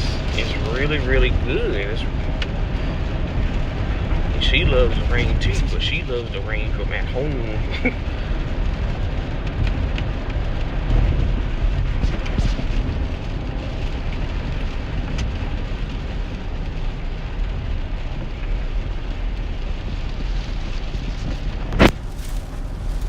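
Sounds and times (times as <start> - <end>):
heavy rain on a vehicle: 0.0 - 23.0
low road and engine rumble: 0.0 - 23.0.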